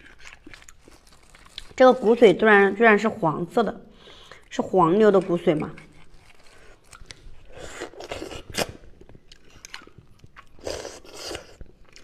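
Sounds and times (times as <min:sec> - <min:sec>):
biting and chewing: 0:00.0 - 0:01.8, 0:05.0 - 0:12.0.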